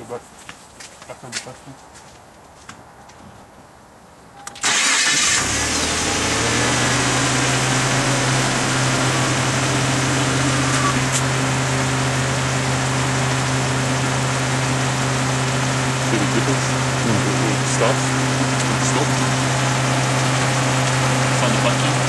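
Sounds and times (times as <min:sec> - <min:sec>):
car engine starting and idling: 0:04.4 - 0:22.0.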